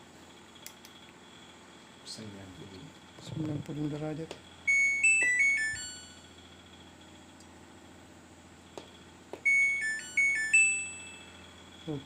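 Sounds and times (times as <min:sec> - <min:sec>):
electronic beep tune: 0:04.7 - 0:06.2, 0:09.5 - 0:11.4.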